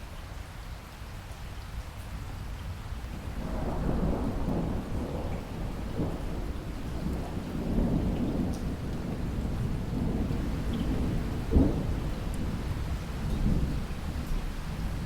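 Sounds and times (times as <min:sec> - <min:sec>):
steady rain: 0:00.0 - 0:15.0
thunder rolling: 0:03.4 - 0:13.9.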